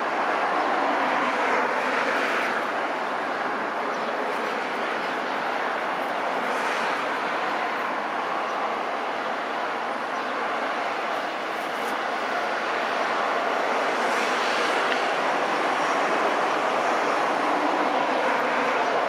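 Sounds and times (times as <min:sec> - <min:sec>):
jet engine roar: 0:10.8 - 0:19.0.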